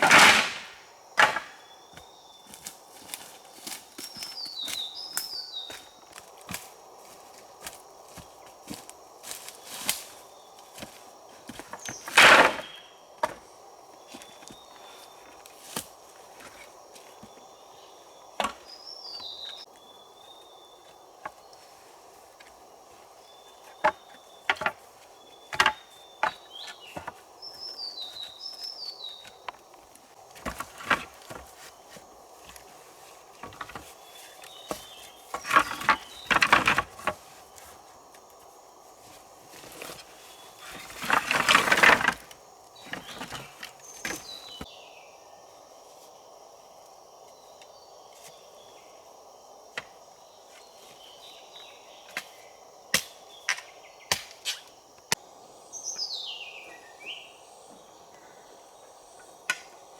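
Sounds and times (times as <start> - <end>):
rustling: 39.0 - 44.7.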